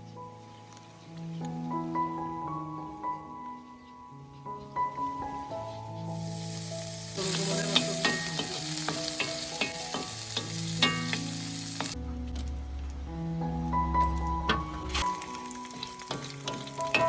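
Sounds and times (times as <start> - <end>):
soft background music: 0.0 - 17.0
food sizzling in a pan: 6.2 - 12.0, 15.0 - 17.0.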